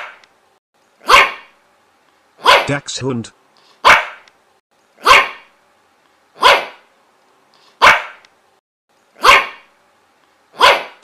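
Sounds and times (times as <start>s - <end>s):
dog barking: 1.0s - 1.5s, 2.4s - 2.7s, 3.8s - 4.3s, 5.0s - 5.5s, 6.4s - 6.8s, 7.8s - 8.2s, 9.2s - 9.7s, 10.6s - 11.0s.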